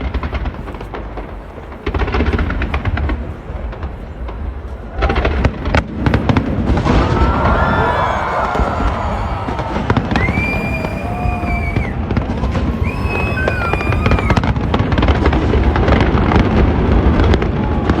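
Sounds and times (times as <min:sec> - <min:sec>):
fireworks crackling: 0:00.0 - 0:17.9
fireworks bursts rumbling: 0:00.0 - 0:18.0
firework whistles: 0:07.9 - 0:14.7.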